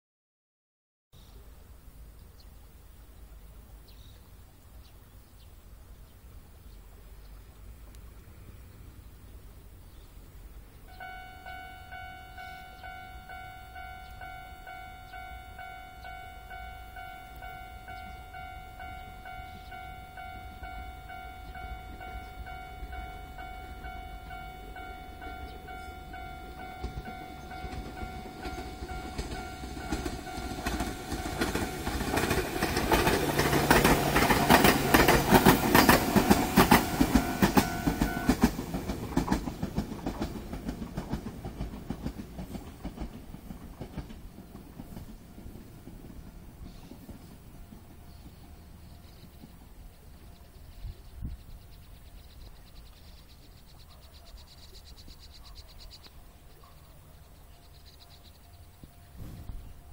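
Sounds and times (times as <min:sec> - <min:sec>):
electric train passing: 0:05.7 - 0:59.9
steady ringing tone: 0:10.9 - 0:34.3, 0:35.4 - 0:38.4
wheels clicking over rail joints: 0:10.9 - 0:59.9.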